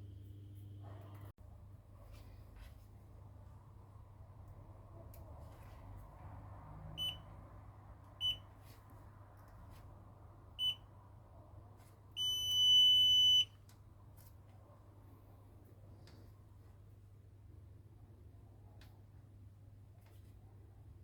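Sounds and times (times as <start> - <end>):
multimeter continuity beeps: 7.0 - 7.3, 8.2 - 8.5, 10.6 - 10.9, 12.2 - 13.6.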